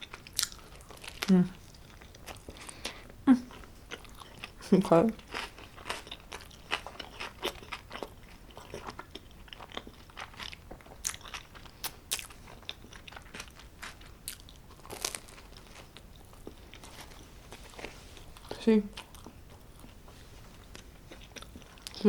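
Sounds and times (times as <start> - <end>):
pizza chewing crunches: 0.0 - 4.6, 5.2 - 22.0.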